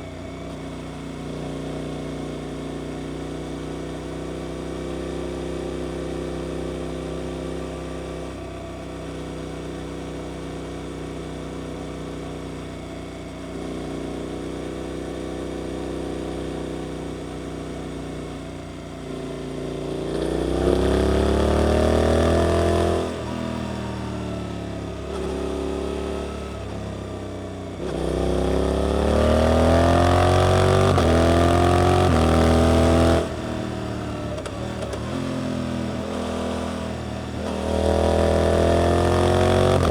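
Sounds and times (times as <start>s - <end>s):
motorcycle engine revving: 19.2s - 39.9s.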